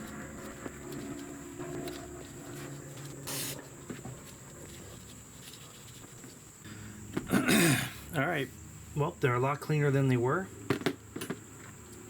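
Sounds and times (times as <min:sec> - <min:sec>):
rubbing and handling noises: 0:00.0 - 0:06.6.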